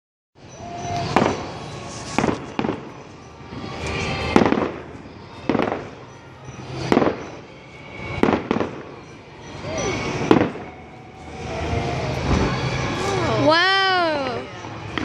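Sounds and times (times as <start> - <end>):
fireworks bangs: 0.6 - 9.1, 9.8 - 13.1
low rumble: 10.0 - 13.7.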